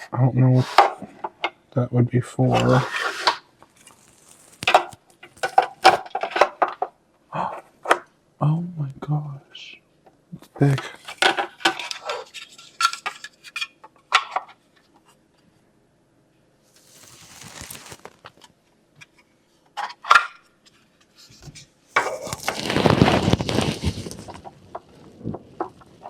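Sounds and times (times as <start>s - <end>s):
soft rustle: 2.6s - 5.6s, 16.7s - 18.5s, 20.8s - 26.0s
plastic parts clicking and knocking: 4.6s - 7.0s, 10.8s - 14.6s
dense burst of noise: 22.3s - 26.0s.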